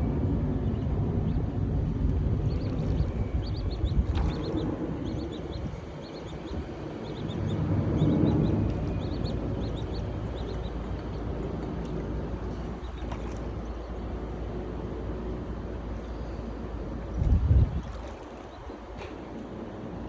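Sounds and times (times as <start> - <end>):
steady low rumble: 0.0 - 20.0
small birds chirping: 0.6 - 14.6.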